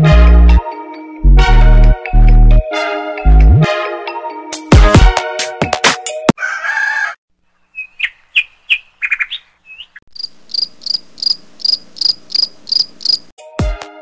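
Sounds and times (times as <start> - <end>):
birds chirping: 7.6 - 13.3.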